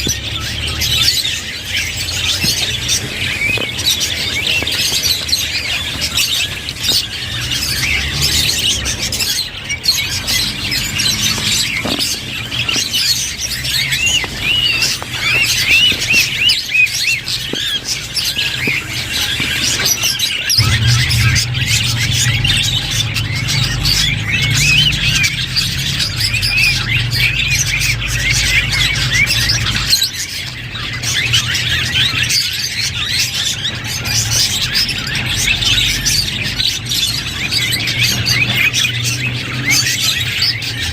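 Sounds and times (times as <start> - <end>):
budgerigars chattering: 0.0 - 40.9
steady low hum: 20.6 - 29.2.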